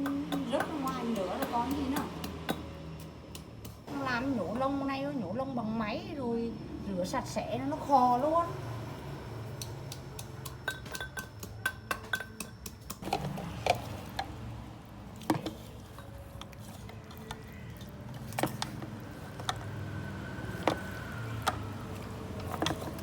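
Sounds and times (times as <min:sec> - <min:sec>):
utensils and dishes clinking: 0:10.2 - 0:14.4, 0:15.2 - 0:19.8, 0:20.5 - 0:23.0.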